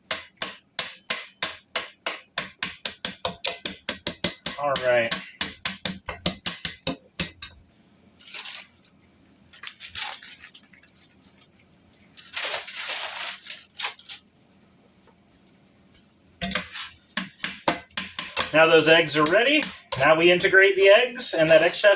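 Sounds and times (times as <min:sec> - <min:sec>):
utensil clicking on pan: 0:00.0 - 0:07.6, 0:16.4 - 0:20.1
utensil scraping pan: 0:16.4 - 0:21.9.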